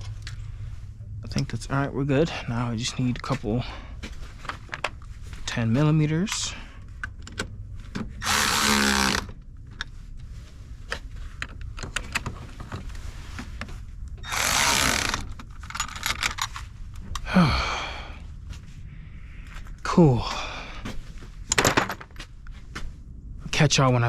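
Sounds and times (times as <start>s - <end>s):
cordless power tool running: 8.2s - 9.3s, 14.2s - 15.3s
tools clicking and clattering: 14.2s - 17.2s, 21.5s - 22.2s.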